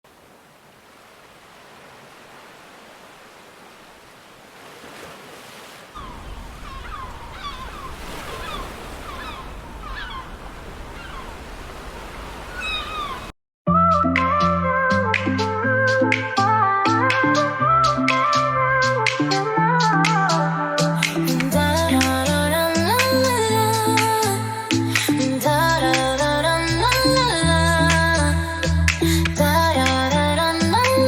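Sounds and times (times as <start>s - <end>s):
waves and surf washing: 0.0s - 13.3s
gulls calling: 5.9s - 13.4s
music: 13.7s - 31.0s.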